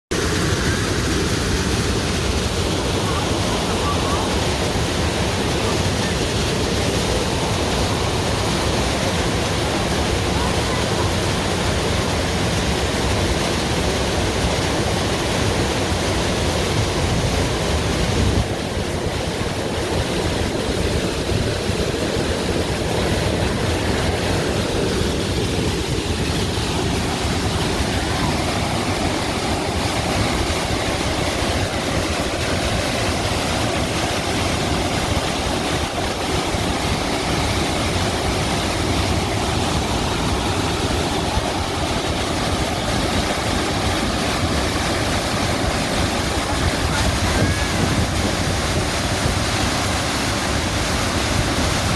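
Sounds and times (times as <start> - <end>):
waterfall rushing: 0.1 - 51.9.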